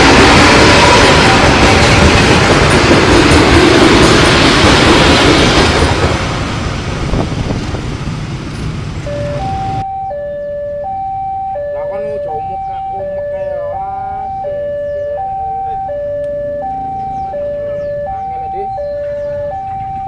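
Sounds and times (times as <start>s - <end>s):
freight train wheels rumbling: 0.0s - 9.8s
two-tone crossing alarm: 9.0s - 20.0s.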